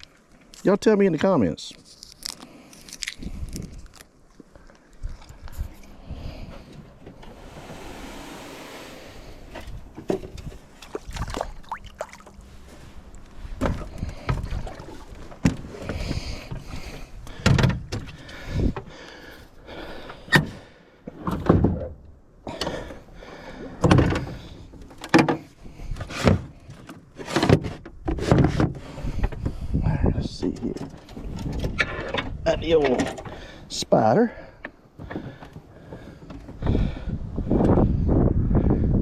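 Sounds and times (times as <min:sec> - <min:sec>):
knocks and clunks in a boat: 0:13.0 - 0:19.0, 0:20.1 - 0:33.6, 0:34.4 - 0:38.0.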